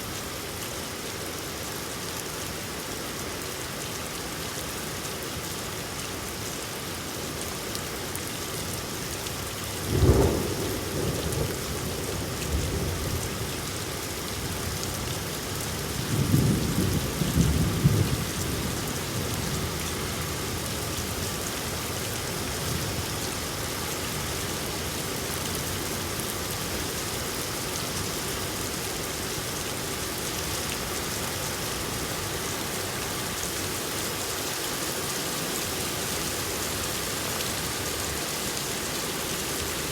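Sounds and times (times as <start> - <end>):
steady rain falling: 0.0 - 39.9
rolling thunder rumble: 9.9 - 13.3, 16.0 - 19.6.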